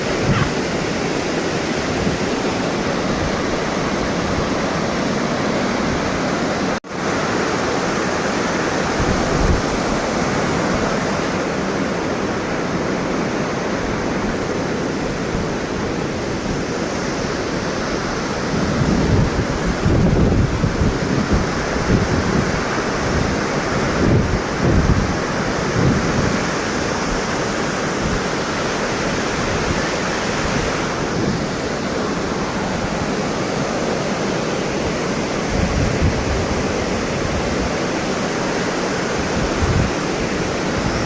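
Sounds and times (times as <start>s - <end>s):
wind buffeting microphone: 0.0s - 1.0s, 18.0s - 27.3s, 39.2s - 41.0s
waterfall roaring: 0.0s - 41.0s.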